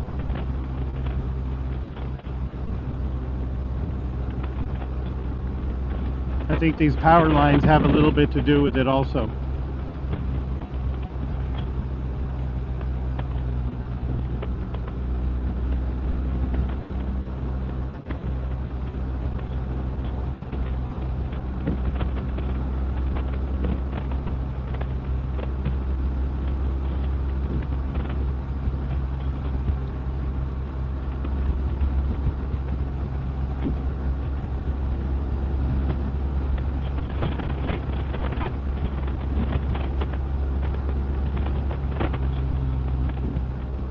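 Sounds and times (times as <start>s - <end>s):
motorcycle engine drone: 0.0s - 43.9s.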